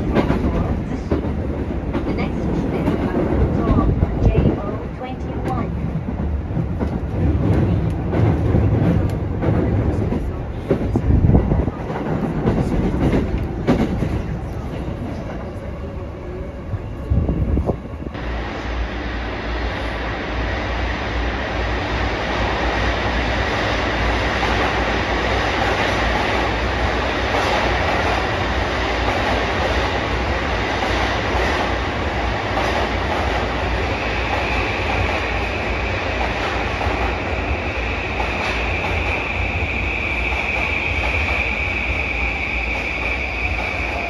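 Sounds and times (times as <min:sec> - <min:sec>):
train rumble of wheels and motors: 0:00.0 - 0:44.0
steady high whine: 0:18.2 - 0:27.3.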